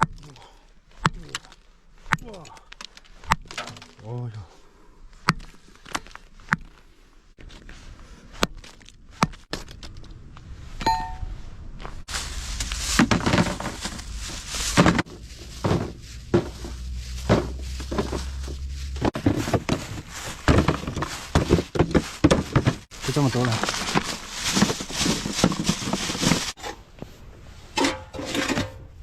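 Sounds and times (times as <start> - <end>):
coal pieces clattering: 19.1 - 26.5.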